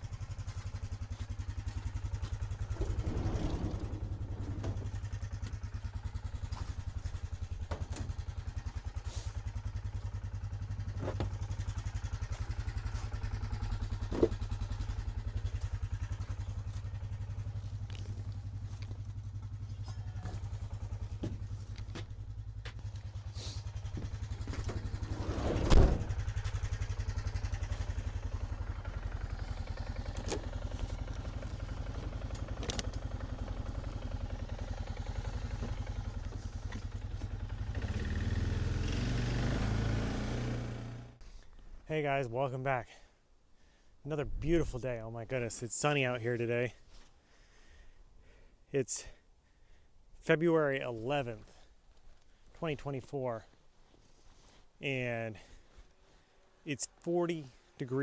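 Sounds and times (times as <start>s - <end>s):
small vehicle engine running: 0.0s - 41.2s
knocks and rattles: 1.7s - 5.8s
loud thump: 24.0s - 26.2s.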